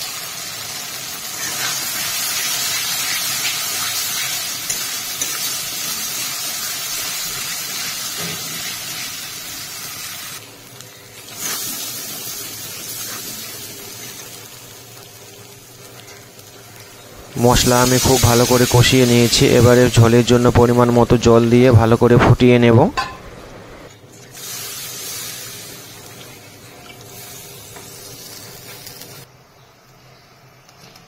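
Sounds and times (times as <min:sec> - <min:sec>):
spice paste sizzling in oil: 0:00.0 - 0:22.4, 0:24.2 - 0:29.3
spatula stirring in a pan: 0:12.8 - 0:14.3.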